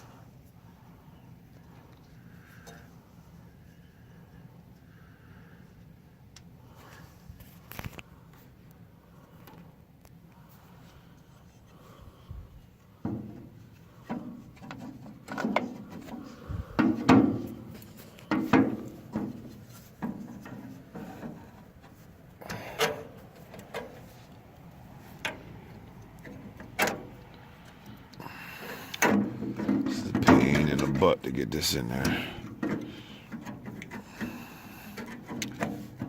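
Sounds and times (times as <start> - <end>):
hand tools knocking and scraping metal: 13.0 - 24.2, 28.3 - 31.2, 31.8 - 36.0.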